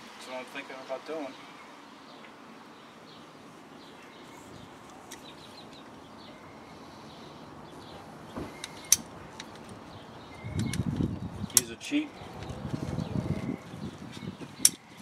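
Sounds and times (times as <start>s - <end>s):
soft thump: 8.4s - 8.6s
sharp click: 10.5s - 10.9s.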